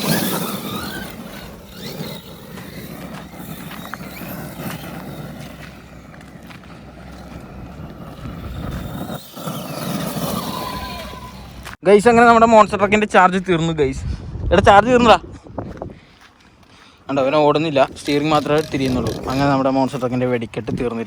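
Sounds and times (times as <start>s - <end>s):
rc truck electric motor whining: 0.0s - 11.8s, 17.9s - 19.6s.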